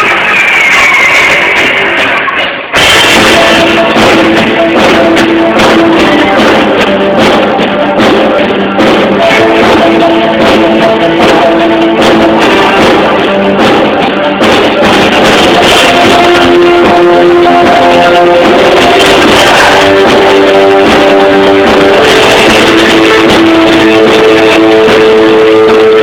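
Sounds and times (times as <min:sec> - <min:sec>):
drum kit: 0:00.0 - 0:26.0
electric guitar: 0:00.0 - 0:26.0.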